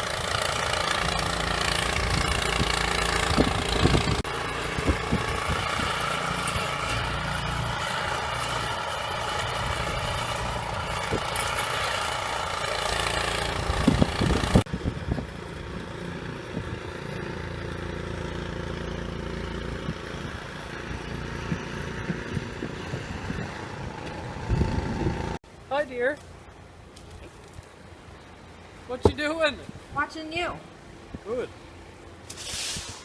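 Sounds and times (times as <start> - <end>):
engine running: 0.0 - 25.4.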